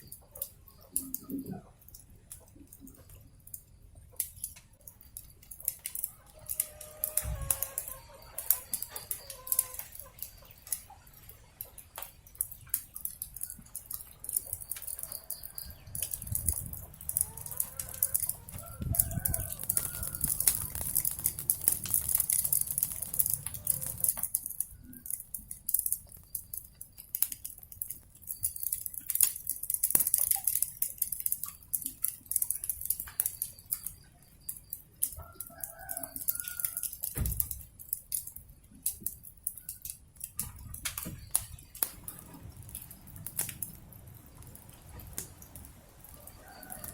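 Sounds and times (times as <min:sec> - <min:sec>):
wood fire crackling and popping: 0:00.0 - 0:46.9
rooster calling: 0:06.1 - 0:10.2, 0:17.2 - 0:20.9, 0:23.0 - 0:24.1.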